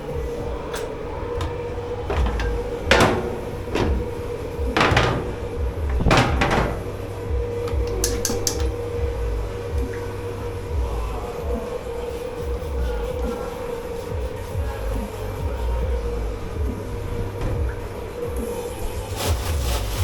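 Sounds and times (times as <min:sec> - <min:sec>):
dishes clattering: 0:00.0 - 0:12.5
kitchen machinery hum: 0:00.0 - 0:20.0.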